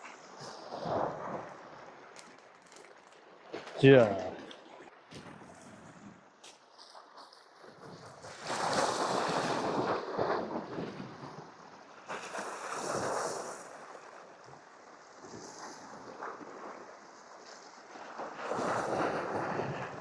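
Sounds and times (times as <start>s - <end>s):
low wash of surf: 8.3s - 20.0s
waves surging against rocks: 8.3s - 20.0s.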